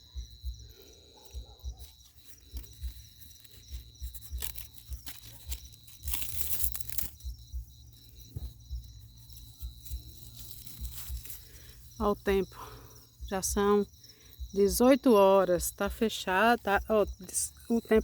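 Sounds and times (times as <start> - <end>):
cricket trill: 0.0 - 18.0
bonfire kindling crackling: 1.1 - 12.2
microphone handling thumps: 7.2 - 10.1.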